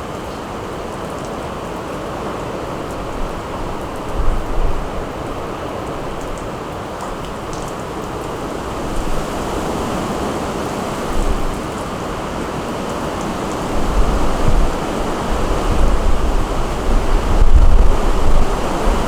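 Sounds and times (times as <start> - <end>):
steady rain falling: 0.0 - 19.0
wind buffeting microphone: 8.3 - 19.0.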